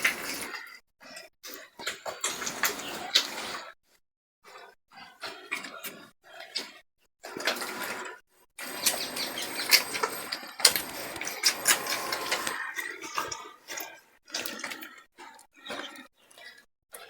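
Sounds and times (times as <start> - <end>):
puppies suckling: 8.6 - 12.6.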